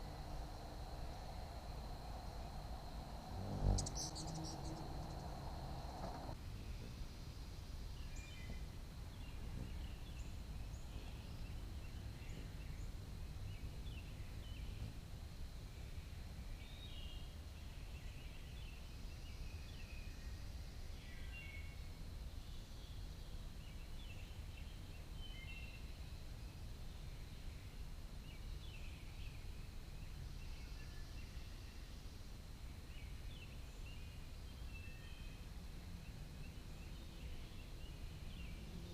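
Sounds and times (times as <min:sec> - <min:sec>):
high insect drone: 0:00.0 - 0:08.3
low outdoor rumble: 0:00.0 - 0:16.6.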